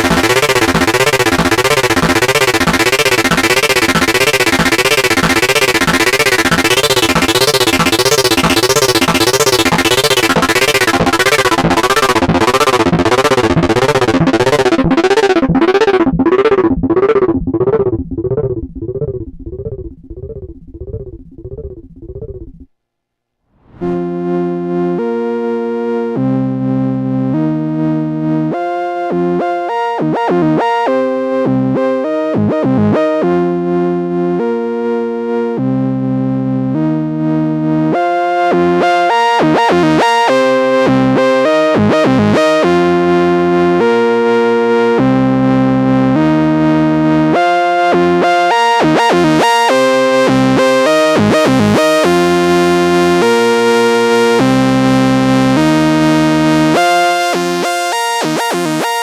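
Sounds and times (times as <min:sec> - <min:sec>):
analog synthesizer arpeggio: 0:00.0 - 0:22.7, 0:37.9 - 0:59.0.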